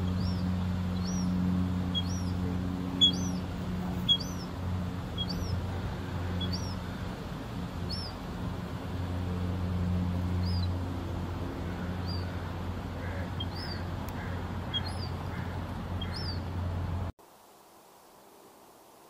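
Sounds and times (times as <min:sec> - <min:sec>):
bird chirping: 0:00.0 - 0:07.0, 0:07.8 - 0:08.2, 0:11.9 - 0:16.5
steady low hum: 0:00.0 - 0:17.2.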